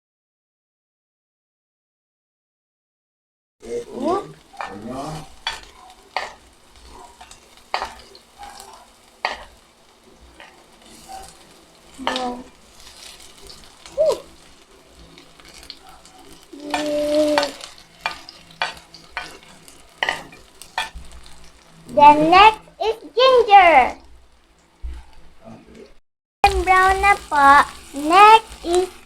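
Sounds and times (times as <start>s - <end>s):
garlic and onion sizzling in oil: 3.6s - 29.0s
spatula scraping and knocking pan: 4.4s - 13.9s, 15.4s - 22.6s.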